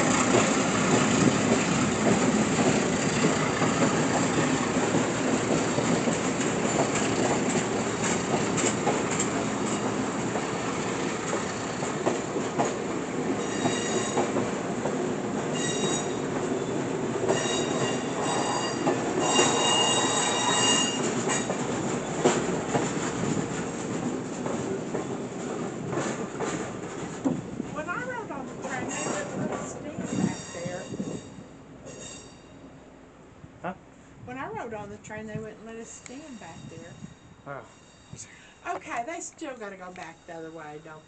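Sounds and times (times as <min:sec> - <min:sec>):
train cars rumbling past: 0:00.0 - 0:41.0
wheels clicking over rail joints: 0:00.1 - 0:31.2
high-pitched wheel squeal: 0:15.6 - 0:16.2, 0:17.3 - 0:21.0.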